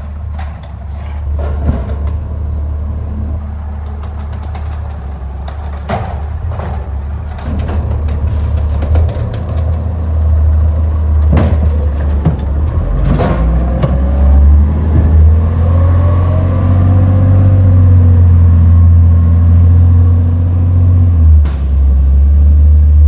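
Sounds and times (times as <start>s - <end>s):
knocks and clanks: 0.0s - 16.1s
truck engine droning: 0.0s - 23.0s.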